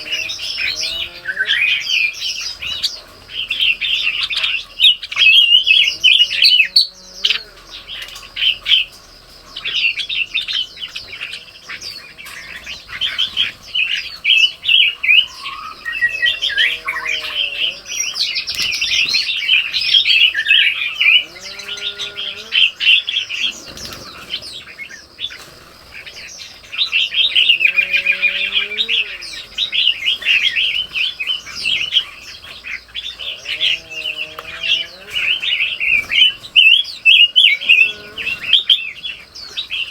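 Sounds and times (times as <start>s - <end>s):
lower arching bird call: 0.0s - 2.4s, 10.9s - 23.0s
songbirds chirping: 0.0s - 39.9s.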